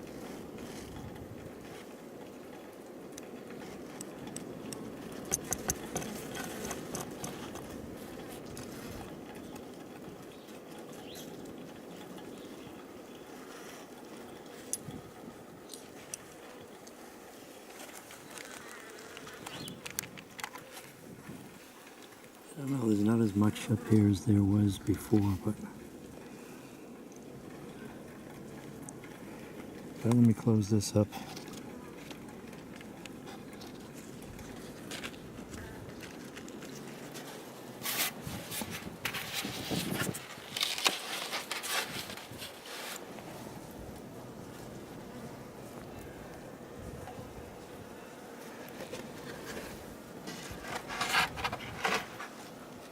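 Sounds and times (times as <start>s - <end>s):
bees humming: 12.3s - 35.9s
wooden cover scraping and knocking: 50.3s - 52.4s.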